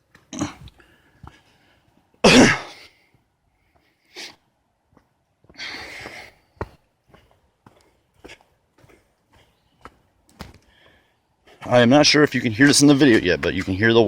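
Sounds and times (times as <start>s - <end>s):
person coughing: 2.2s - 2.8s.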